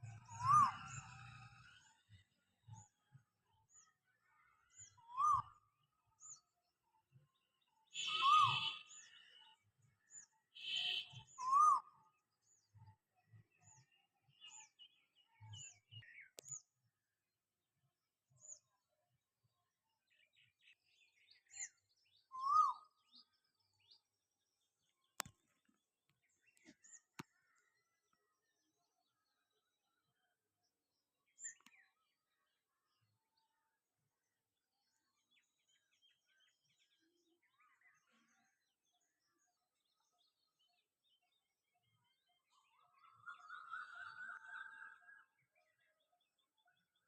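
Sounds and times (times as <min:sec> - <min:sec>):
rising and falling bird call: 0:00.2 - 0:01.6, 0:08.0 - 0:09.1
short high bird chirps: 0:08.0 - 0:09.1.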